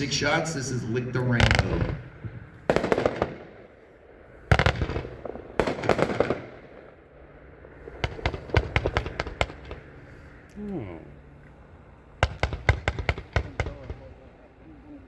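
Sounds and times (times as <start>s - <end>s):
fireworks cracking and popping: 1.2s - 3.5s, 4.5s - 6.9s, 8.0s - 9.9s.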